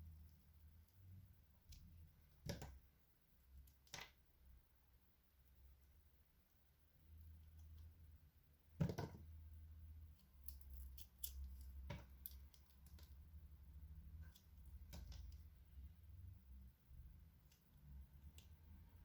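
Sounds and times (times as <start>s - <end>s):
knife cutting soap crunch: 10.3s - 13.1s.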